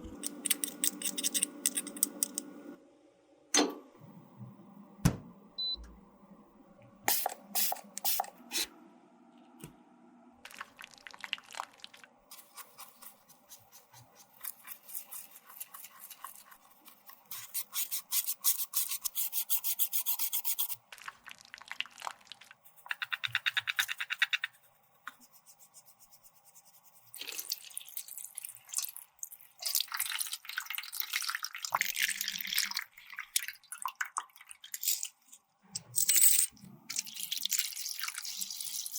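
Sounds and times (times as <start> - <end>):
small tool scraping and tapping: 0.2 - 2.5.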